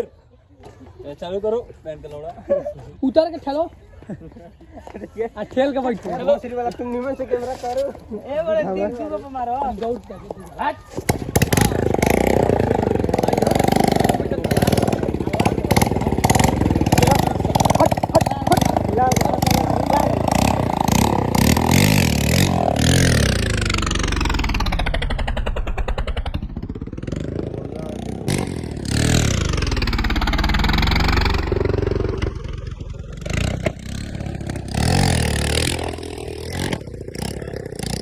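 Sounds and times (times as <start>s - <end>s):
old motorcycle engine running: 11.0s - 38.0s.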